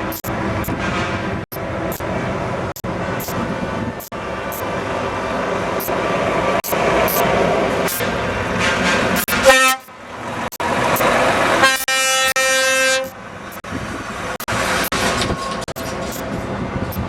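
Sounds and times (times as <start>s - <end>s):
road noise: 0.0s - 17.0s
truck engines running: 0.0s - 17.0s
truck air horn blasts: 9.3s - 10.0s, 11.6s - 13.2s.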